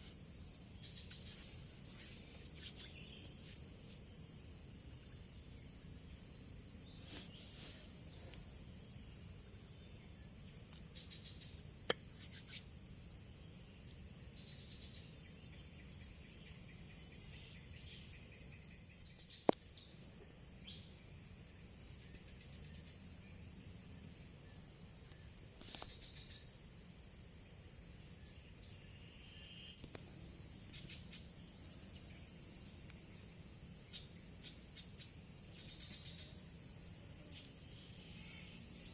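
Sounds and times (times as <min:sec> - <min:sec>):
short insect call: 0:00.0 - 0:38.9
high-pitched insect drone: 0:28.1 - 0:38.9.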